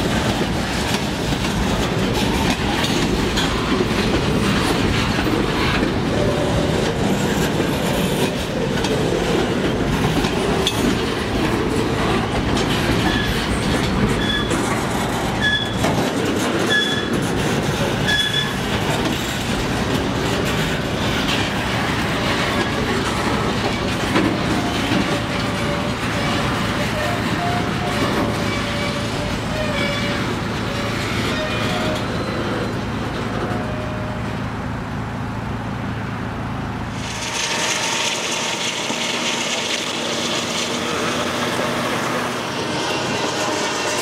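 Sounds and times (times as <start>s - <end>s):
freight cars rolling on rails: 0.0s - 44.0s
short high train squeal: 12.9s - 15.9s, 16.6s - 17.2s, 18.0s - 18.6s, 24.6s - 34.5s, 37.0s - 44.0s.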